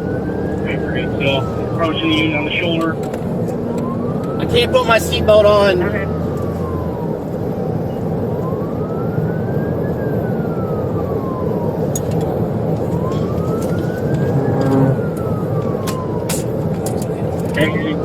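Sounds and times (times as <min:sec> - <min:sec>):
police siren wailing: 0:00.0 - 0:18.0
vehicle road and engine noise: 0:00.0 - 0:18.0.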